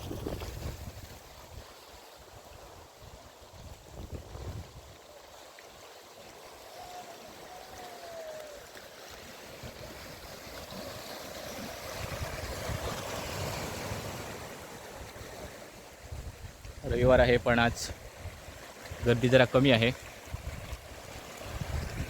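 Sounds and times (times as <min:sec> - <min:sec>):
wind on microphone: 0:00.0 - 0:01.7, 0:03.5 - 0:05.0, 0:11.5 - 0:14.4, 0:16.0 - 0:19.1, 0:20.2 - 0:22.0
sea surf washing onto beach: 0:00.0 - 0:22.0.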